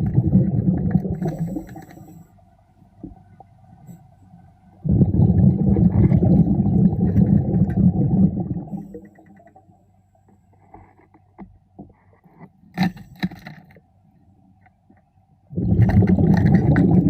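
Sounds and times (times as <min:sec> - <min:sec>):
underwater bubbles rumbling: 0:00.0 - 0:02.1, 0:04.8 - 0:09.1, 0:15.5 - 0:17.0.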